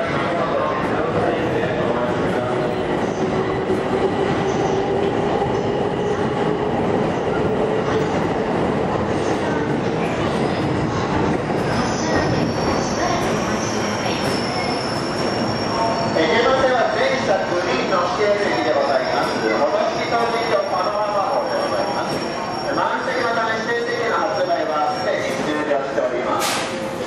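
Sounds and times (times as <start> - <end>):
train running noise: 0.0 - 27.0
high-pitched wheel squeal: 14.0 - 16.3.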